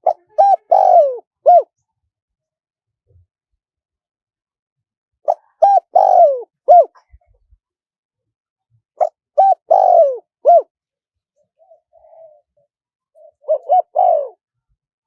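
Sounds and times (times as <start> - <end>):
dove cooing: 0.0 - 1.8, 5.3 - 7.2, 9.0 - 10.7, 11.6 - 14.4.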